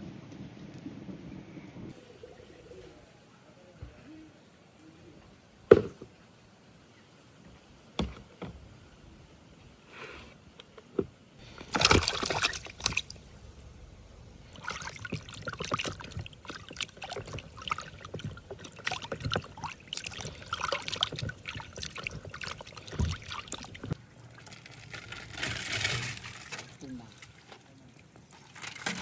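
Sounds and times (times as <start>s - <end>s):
water sloshing and trickling: 10.9s - 29.0s
objects clattering in water: 11.4s - 13.8s, 14.5s - 29.0s
water splash: 11.4s - 24.6s.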